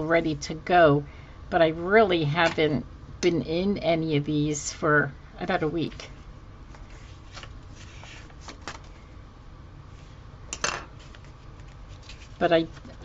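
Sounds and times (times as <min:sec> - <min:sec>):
low steady hum: 0:00.0 - 0:13.0
paper sheets clicking and rustling: 0:06.8 - 0:08.9.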